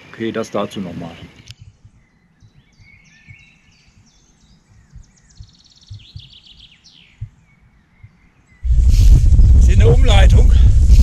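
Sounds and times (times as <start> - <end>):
bird trill: 0.0 - 8.7
songbirds singing: 0.0 - 10.2
faint outdoor background: 0.0 - 11.0
short low thumps: 4.8 - 6.4, 8.6 - 11.0.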